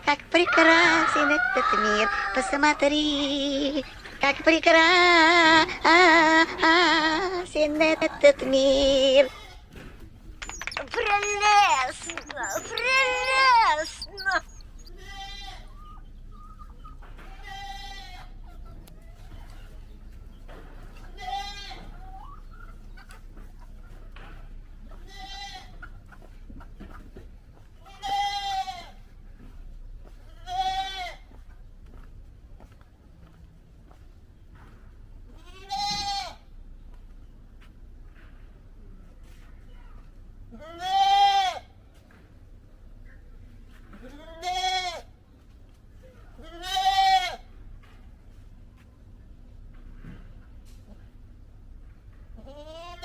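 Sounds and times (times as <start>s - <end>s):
goat bleating: 10.4s - 16.0s, 17.2s - 18.4s, 21.0s - 21.9s, 24.8s - 25.9s, 27.8s - 29.0s, 30.3s - 31.3s, 35.3s - 36.4s, 40.5s - 41.7s, 44.0s - 45.1s, 46.4s - 47.5s, 52.4s - 53.0s.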